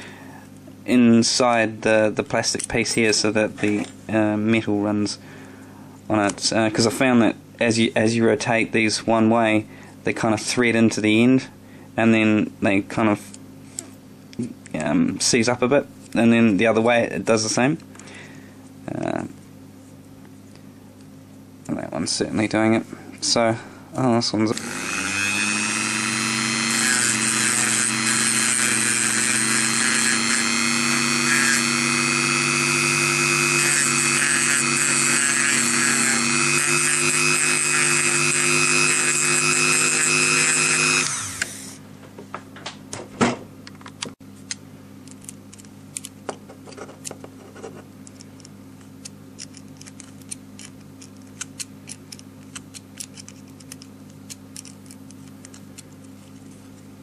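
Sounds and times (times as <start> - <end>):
power tool motor whining: 24.5 - 41.8.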